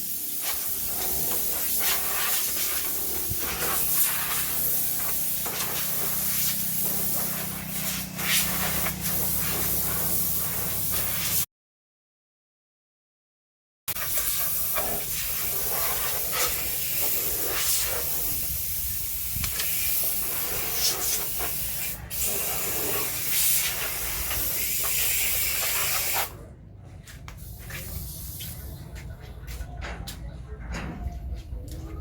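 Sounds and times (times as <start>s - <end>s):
water jet spraying: 0.0s - 11.4s, 13.9s - 26.3s.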